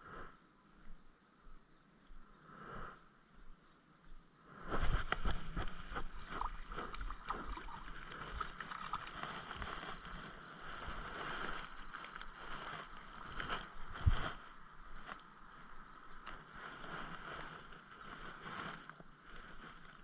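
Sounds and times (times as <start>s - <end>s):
water splashing and sloshing: 4.8s - 17.3s.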